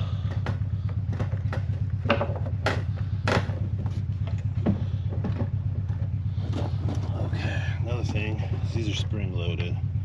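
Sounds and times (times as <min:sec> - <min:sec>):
low hum: 0:00.0 - 0:10.0
clicks and knocks of parts: 0:00.2 - 0:07.2.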